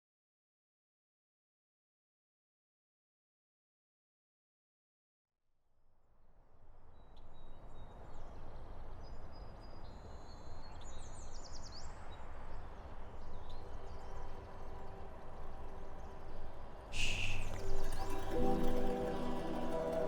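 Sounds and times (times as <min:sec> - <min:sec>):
small birds chirping: 0:17.0 - 0:20.0.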